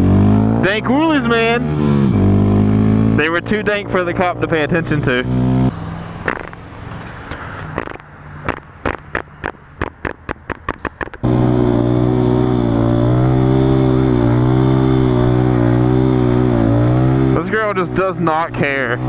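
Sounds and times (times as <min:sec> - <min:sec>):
motorcycle engine droning: 0:00.0 - 0:19.0
sharp ticks: 0:07.2 - 0:11.2.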